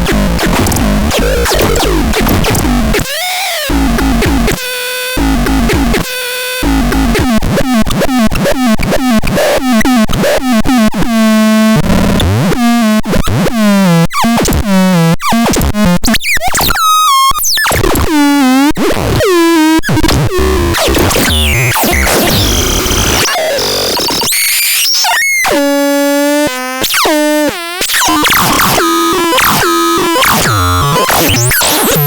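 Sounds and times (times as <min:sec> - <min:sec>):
swooping synthesizer tones: 0:00.0 - 0:07.3
buzzy synthesizer notes: 0:00.0 - 0:10.6, 0:20.3 - 0:32.0.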